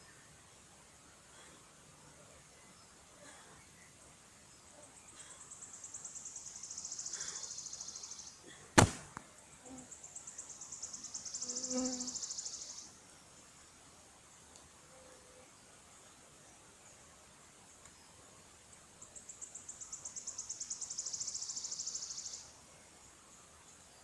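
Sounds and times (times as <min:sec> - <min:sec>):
sharp click: 0:08.8 - 0:09.2.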